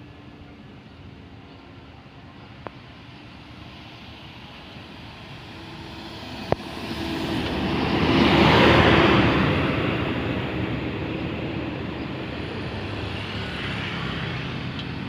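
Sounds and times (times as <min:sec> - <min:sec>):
bus passing close: 0:00.0 - 0:15.0.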